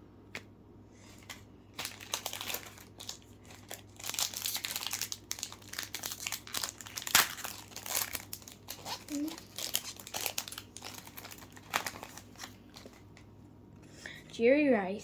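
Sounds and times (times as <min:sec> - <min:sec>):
plastic wrapper crinkling and tearing: 0:01.2 - 0:13.2.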